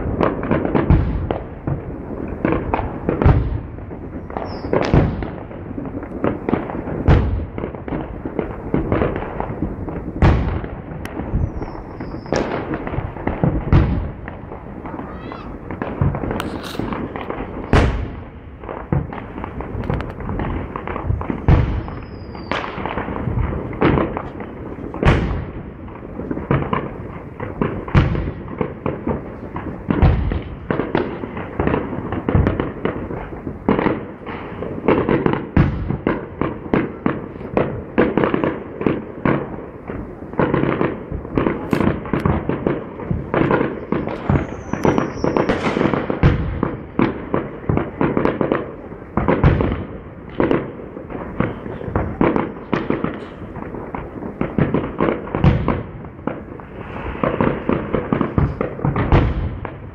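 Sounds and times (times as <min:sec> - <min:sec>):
firework shells bursting: 0:00.0 - 0:59.9
falling firework whistles: 0:04.2 - 0:05.0, 0:11.1 - 0:12.8, 0:14.9 - 0:18.0, 0:21.3 - 0:22.8, 0:43.3 - 0:46.4, 0:56.6 - 0:58.6.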